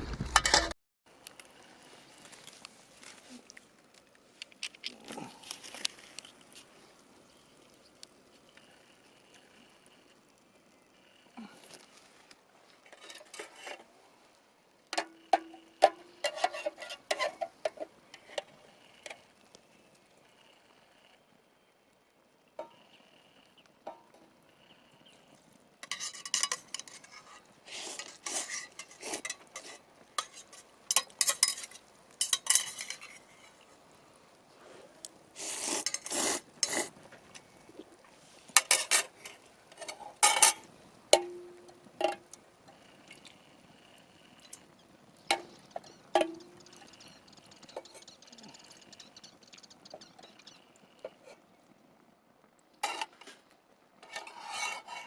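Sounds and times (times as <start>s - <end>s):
utensil scraping metal tin: 0.0s - 0.7s, 12.8s - 13.9s, 15.0s - 19.2s, 25.8s - 33.7s, 35.4s - 37.0s, 38.4s - 41.4s, 52.8s - 53.4s, 54.0s - 55.0s.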